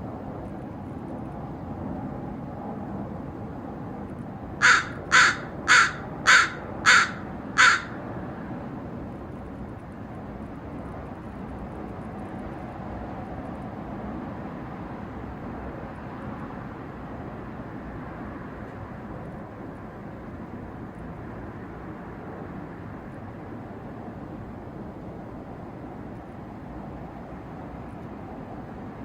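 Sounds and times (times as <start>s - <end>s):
crow cawing: 4.6s - 8.0s.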